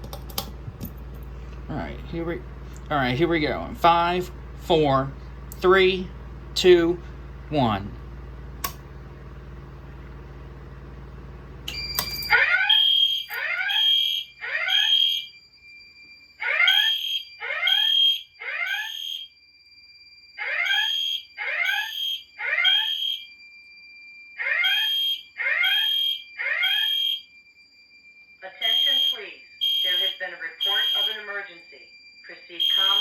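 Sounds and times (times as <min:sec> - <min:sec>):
steady high tone: 0:01.2 - 0:08.1, 0:28.4 - 0:33.0
click: 0:08.6 - 0:08.8, 0:11.7 - 0:12.2
fire alarm horn blasts: 0:09.0 - 0:33.0.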